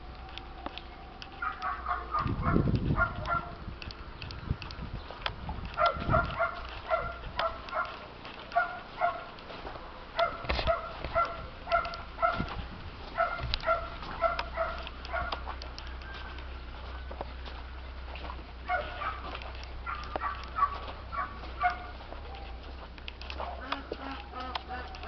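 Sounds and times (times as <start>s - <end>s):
animal calling in short notes: 23.6s - 25.0s.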